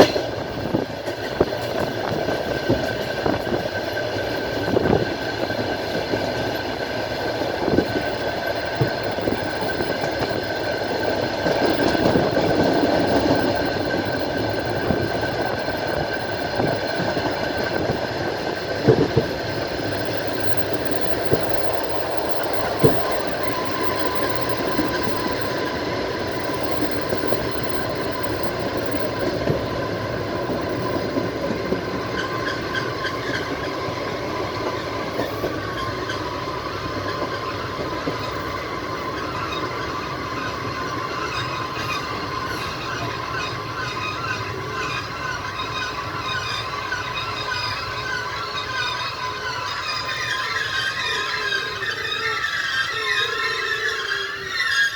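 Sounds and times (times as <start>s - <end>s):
lower whine: 0.0s - 42.0s
train wheels rumbling on rails: 0.0s - 54.9s
thin high whine: 4.6s - 43.2s
wheels knocking over rail joints: 15.8s - 43.1s.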